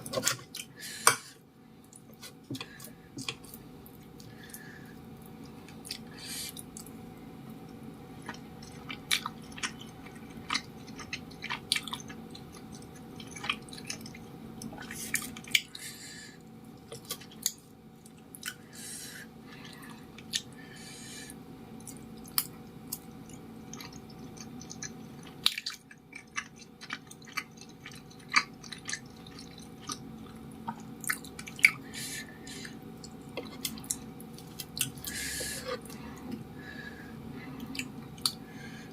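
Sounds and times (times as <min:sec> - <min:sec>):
faint steady hum: 0:00.0 - 0:38.9
chewing with wet mouth clicks: 0:05.2 - 0:15.7, 0:19.6 - 0:20.6, 0:21.8 - 0:31.8, 0:32.6 - 0:35.1, 0:37.6 - 0:38.4.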